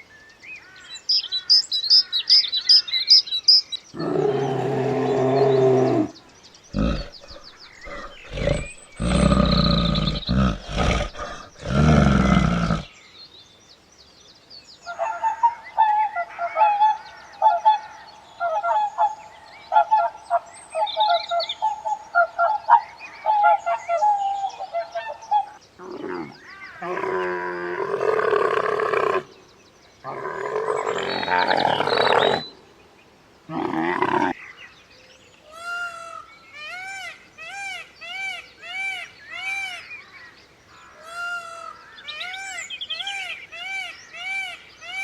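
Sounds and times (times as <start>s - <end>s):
rapid chirping calls: 5.9s - 12.9s
low-pitched animal cries: 6.7s - 12.9s.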